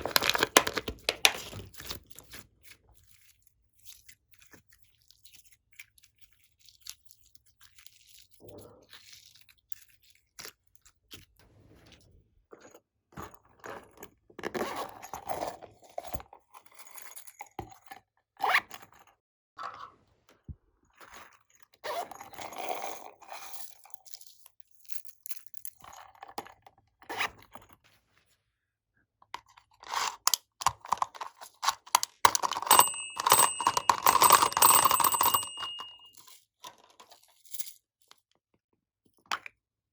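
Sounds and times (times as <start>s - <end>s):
high ringing tone: 32.6s - 36.2s.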